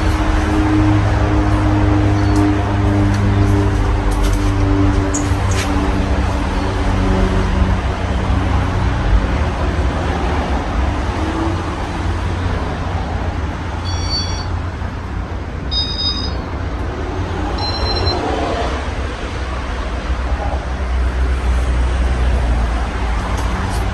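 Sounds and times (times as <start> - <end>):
short high chirps: 13.9 - 14.5, 15.7 - 16.5.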